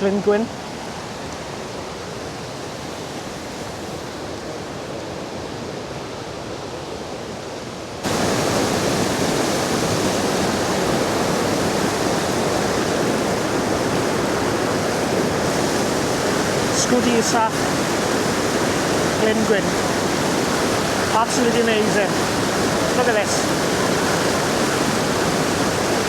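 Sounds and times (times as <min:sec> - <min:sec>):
waterfall rushing: 0:07.7 - 0:26.0.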